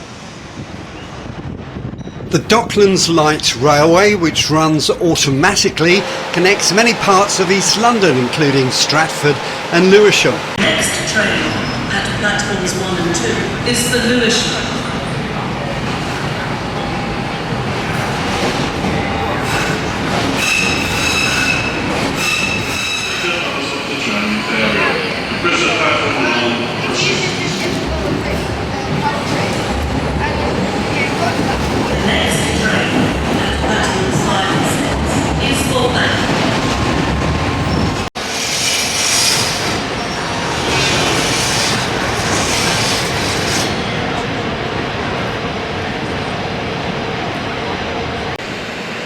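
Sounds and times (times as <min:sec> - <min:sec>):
train rumbling on rails: 0:00.0 - 0:49.0
high wheel squeal: 0:20.4 - 0:23.3, 0:38.2 - 0:43.9.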